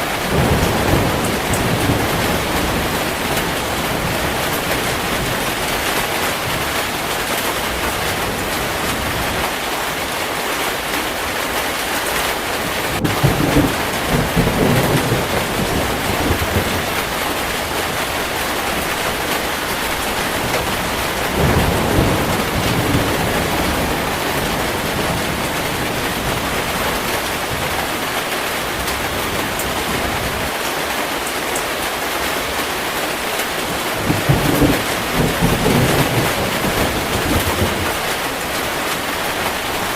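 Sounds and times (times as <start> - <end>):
heavy rain falling: 0.0 - 39.9
low rolls of thunder: 0.2 - 7.1, 12.6 - 30.6, 33.6 - 39.9.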